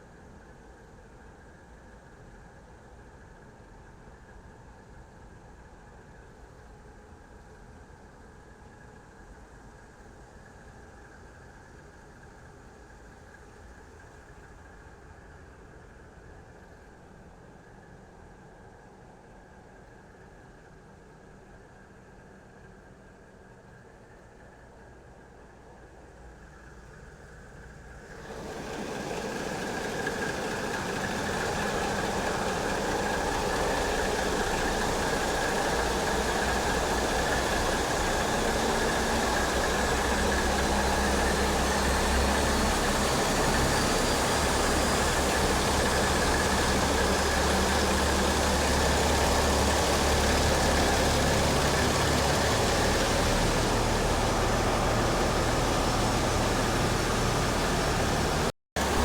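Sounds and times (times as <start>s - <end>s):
tugboat engine running: 28.1s - 59.0s.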